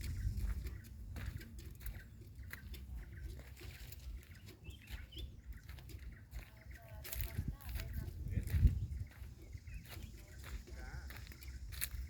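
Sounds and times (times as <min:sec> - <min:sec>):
faint bird chirp: 0:00.0 - 0:12.0
wind on microphone: 0:00.0 - 0:12.0.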